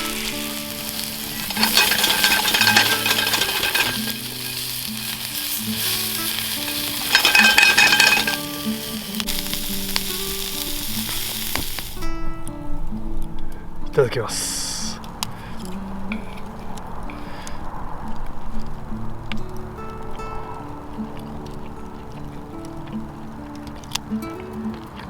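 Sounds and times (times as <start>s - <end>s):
food sizzling in a pan: 0.0s - 12.2s.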